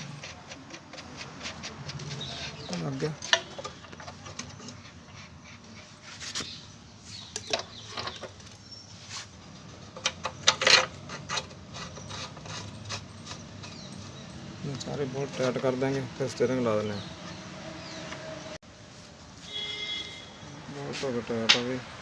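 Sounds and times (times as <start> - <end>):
metal tools clinking and knocking: 7.3 - 8.7, 9.7 - 16.1.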